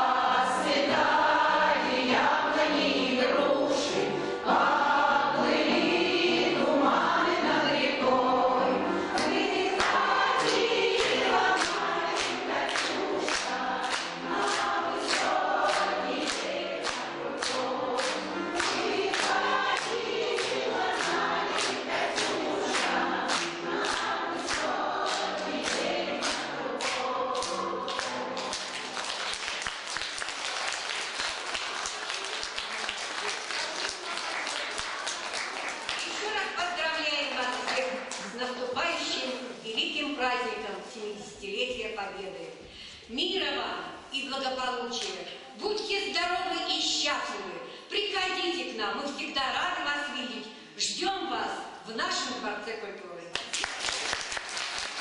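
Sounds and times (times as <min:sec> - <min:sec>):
women's choir singing: 0:00.0 - 0:41.3
hands clapping in time: 0:09.2 - 0:36.2, 0:53.4 - 0:55.0
applause: 0:09.2 - 0:36.5, 0:53.3 - 0:55.0.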